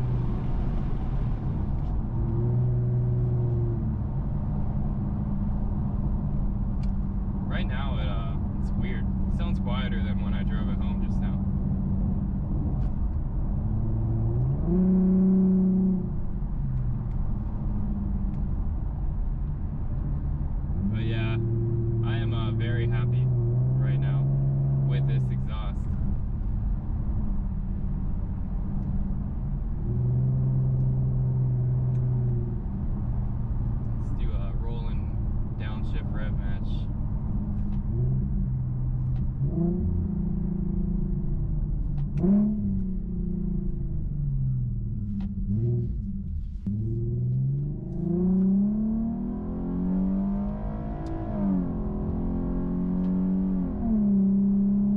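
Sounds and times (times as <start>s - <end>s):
car engine accelerating: 0.0s - 54.9s
car engine revving on downshifts: 42.0s - 44.0s, 45.3s - 54.9s.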